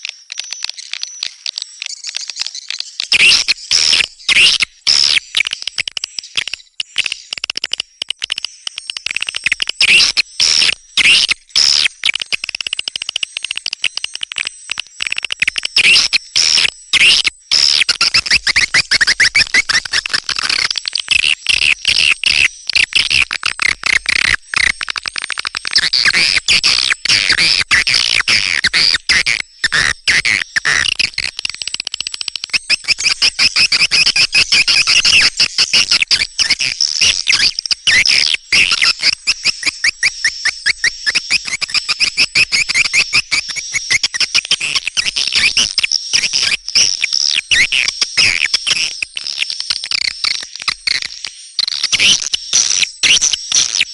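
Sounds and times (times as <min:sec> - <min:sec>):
swiftlets twittering: 0:23.6 - 0:47.6.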